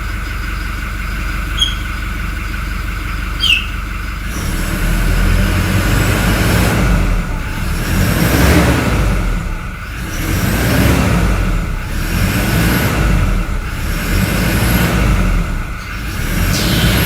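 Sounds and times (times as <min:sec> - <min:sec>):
diesel engine rumble: 0:00.0 - 0:17.0
turbo whistle: 0:01.5 - 0:02.0, 0:03.4 - 0:03.8.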